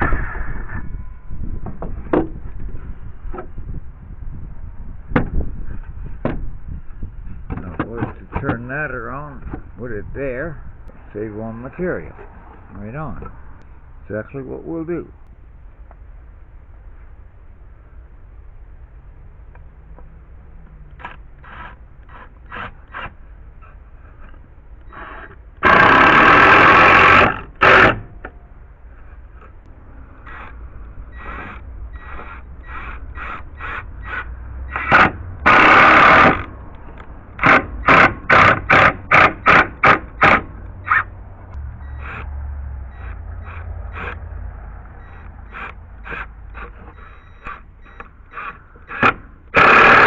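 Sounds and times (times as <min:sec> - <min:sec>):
power tool bursts: 0:24.9 - 0:28.1, 0:31.1 - 0:36.5, 0:37.4 - 0:41.0, 0:45.0 - 0:50.0.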